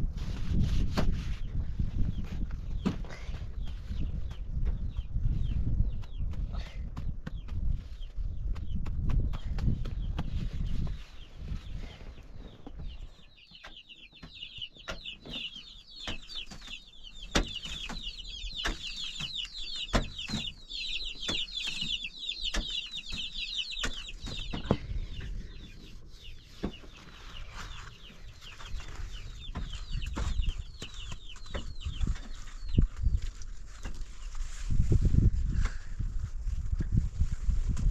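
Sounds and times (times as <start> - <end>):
bird chirps chorus: 7.0 - 34.4.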